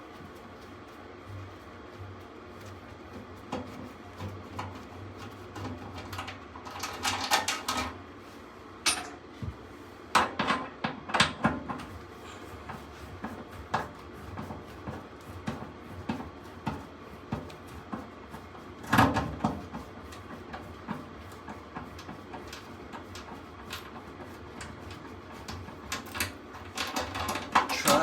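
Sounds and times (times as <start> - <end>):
low steady hum: 0.0 - 16.2
metal tools clinking and knocking: 8.9 - 9.2.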